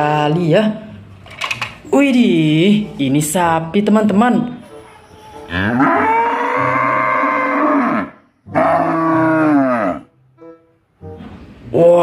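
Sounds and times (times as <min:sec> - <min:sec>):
cow mooing: 0:05.5 - 0:10.1.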